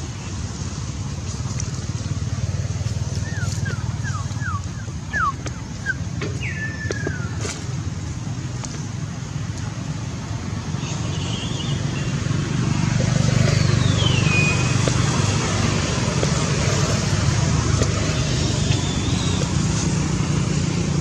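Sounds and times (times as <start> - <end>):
engine humming: 0.0 - 10.8, 12.1 - 21.0
outdoor background noise: 0.0 - 21.0.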